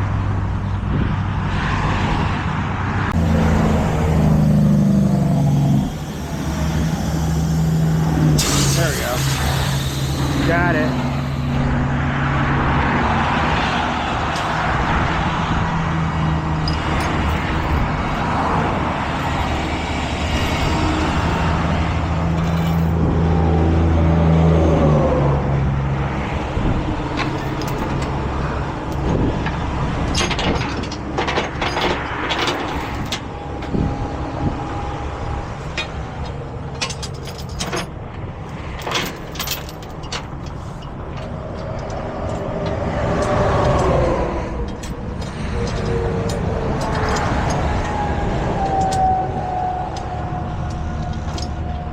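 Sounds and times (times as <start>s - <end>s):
diesel truck engine running: 3.0s - 24.2s
hissing noise: 3.8s - 11.8s.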